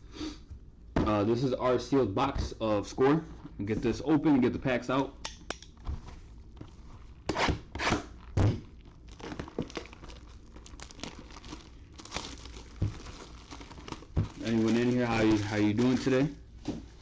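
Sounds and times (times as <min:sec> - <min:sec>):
cellophane and cardboard tearing: 0:06.7 - 0:16.4.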